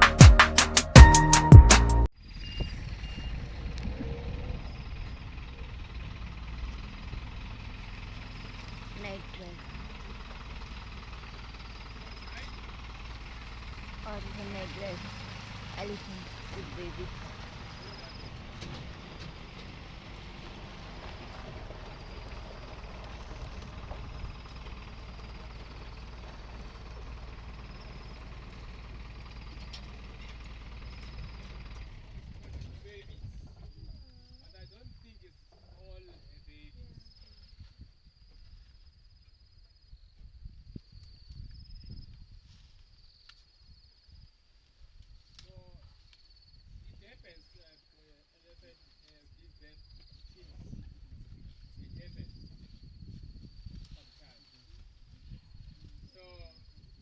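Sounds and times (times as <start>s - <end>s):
short high notes: 0.0s - 2.1s
vehicle engine idling: 0.0s - 34.6s.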